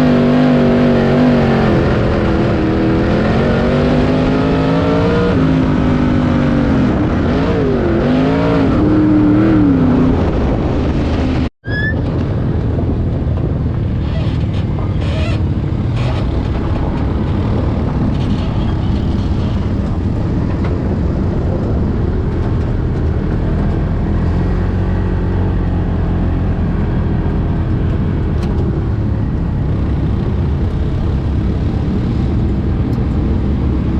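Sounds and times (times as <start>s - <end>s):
road noise: 0.0s - 33.9s
car engine running: 12.3s - 33.9s.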